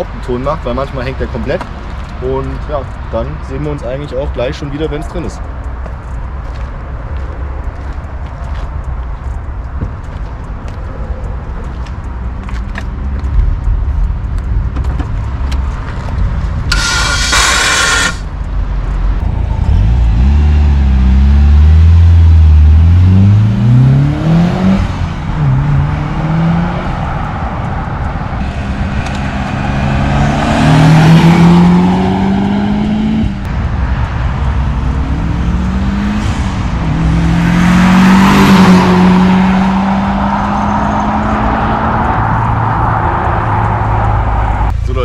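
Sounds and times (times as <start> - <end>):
turbo rushing noise: 16.6 - 18.4
car engine revving and accelerating: 19.0 - 44.7.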